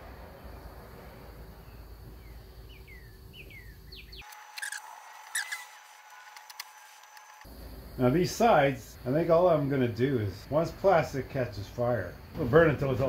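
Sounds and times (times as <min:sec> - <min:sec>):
small birds chirping: 0:01.6 - 0:05.8.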